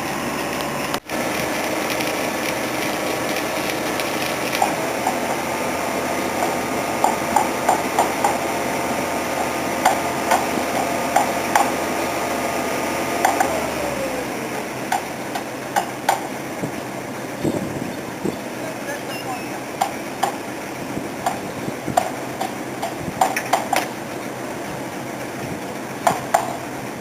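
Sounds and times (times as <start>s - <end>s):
pile-driving rig engine running: 0.0s - 27.0s.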